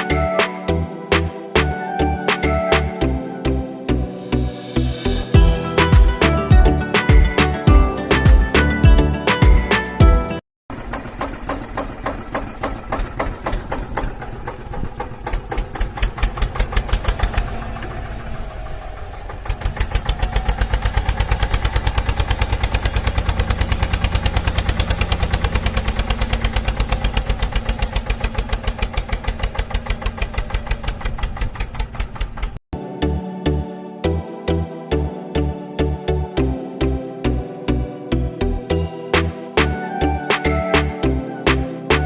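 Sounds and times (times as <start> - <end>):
engine knocking chug: 10.7 - 32.6.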